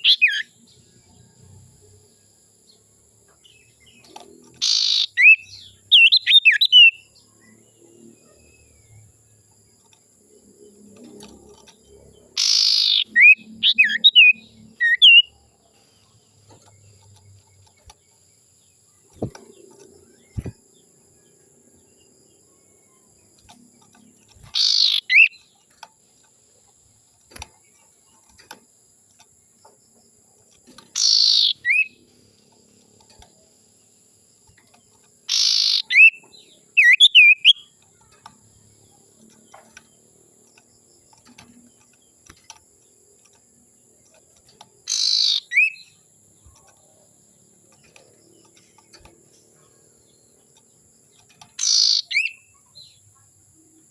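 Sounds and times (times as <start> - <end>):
bird rasping calls: 12.4 - 15.2, 24.5 - 25.3, 31.0 - 32.0, 35.3 - 36.2, 44.9 - 45.8, 51.6 - 52.4.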